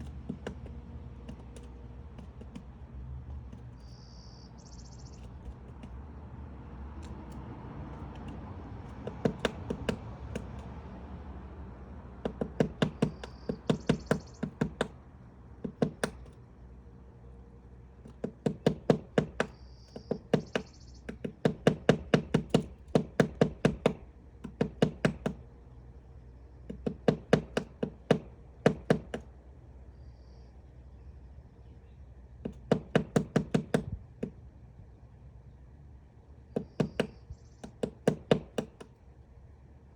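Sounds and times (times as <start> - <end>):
woodpecker pecking wood: 0.0 - 16.6, 17.6 - 29.5, 32.3 - 34.5, 36.4 - 39.1.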